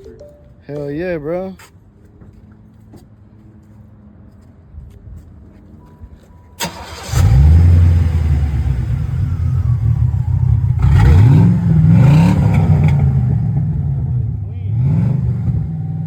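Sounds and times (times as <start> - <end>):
car engine starting: 6.6 - 16.0
engine revving: 6.6 - 16.0
engine idling with deep rumble: 6.8 - 16.0.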